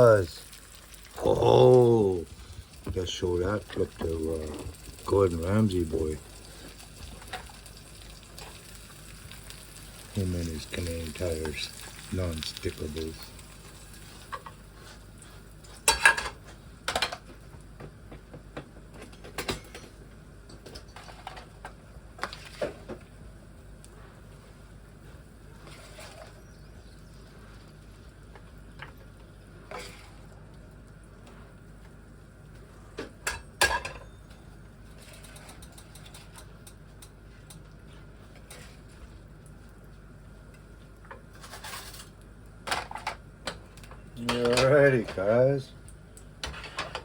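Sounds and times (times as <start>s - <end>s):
utensils clattering on pans: 15.6s - 17.3s, 19.0s - 23.0s, 33.2s - 34.3s, 34.9s - 37.6s, 41.3s - 43.6s, 44.2s - 45.4s, 46.4s - 47.0s
light clicks and scraping: 34.9s - 39.2s.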